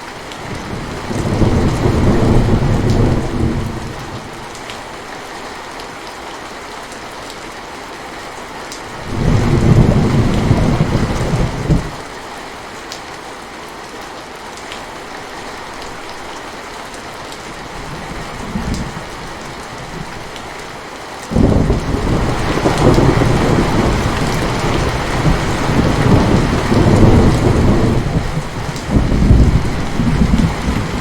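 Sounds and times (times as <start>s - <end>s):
heavy rain falling: 0.0s - 31.0s
thunder rumbling: 0.4s - 4.5s, 9.0s - 12.0s, 17.8s - 20.4s, 21.3s - 31.0s.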